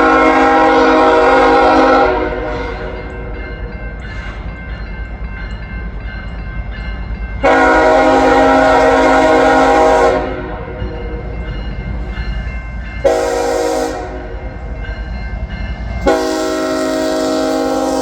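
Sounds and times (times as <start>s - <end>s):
locomotive air horn blasts: 0.0s - 3.1s, 7.4s - 10.8s, 13.0s - 14.4s, 16.0s - 18.0s
train rumbling: 0.0s - 18.0s.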